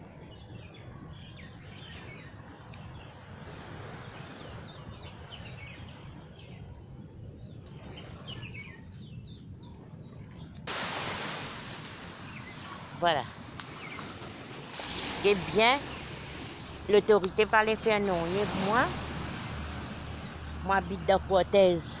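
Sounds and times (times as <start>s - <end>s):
small birds chirping: 12.2s - 18.8s.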